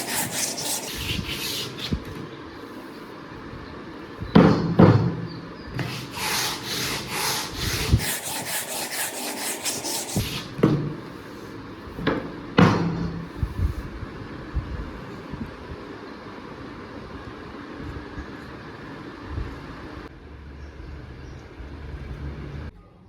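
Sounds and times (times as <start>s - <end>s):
hand tool scraping wood: 0.0s - 2.1s, 5.8s - 10.6s.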